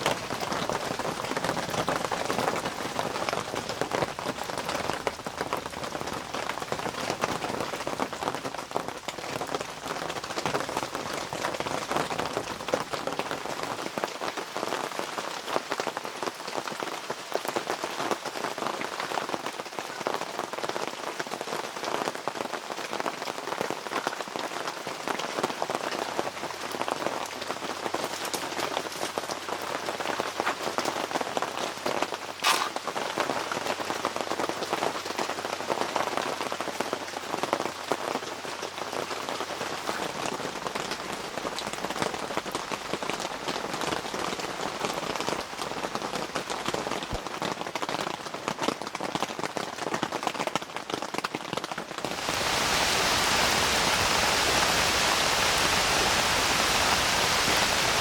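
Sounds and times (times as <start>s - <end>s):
rushing water: 0.0s - 15.0s, 25.7s - 47.2s, 51.9s - 58.0s
rain pattering on a surface: 0.0s - 58.0s.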